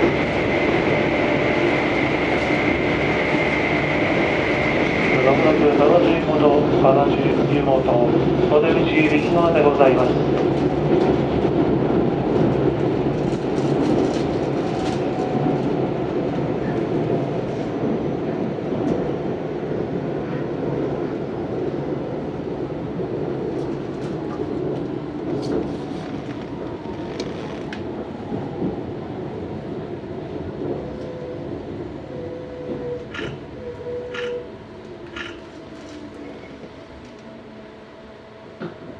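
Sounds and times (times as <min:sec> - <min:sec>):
rail clicks: 0:00.0 - 0:18.0, 0:23.5 - 0:28.8, 0:32.5 - 0:37.4
train wheels rumbling on rail: 0:00.0 - 0:38.9.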